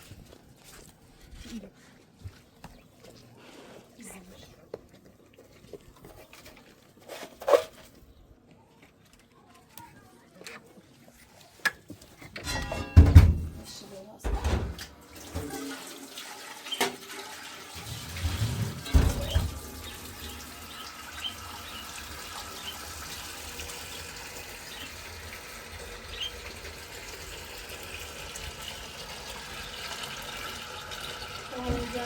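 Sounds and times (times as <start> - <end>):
running water rushing: 15.0 - 32.0.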